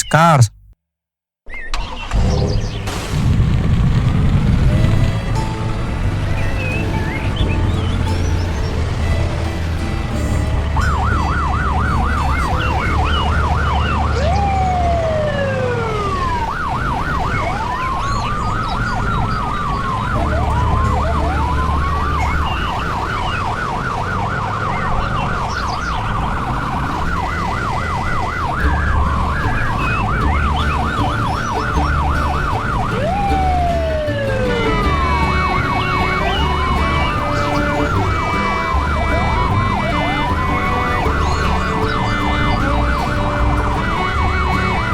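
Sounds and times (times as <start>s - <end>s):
fast warbling siren: 10.8s - 44.9s.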